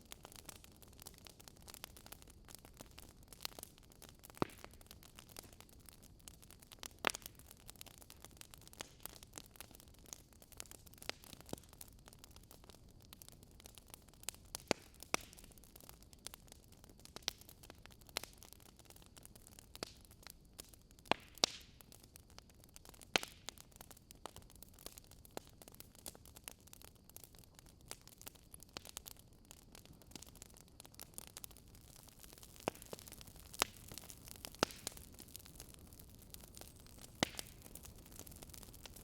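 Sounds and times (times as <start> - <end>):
faint steady hiss: 0.0 - 39.0
logs crackling and popping: 0.0 - 39.0.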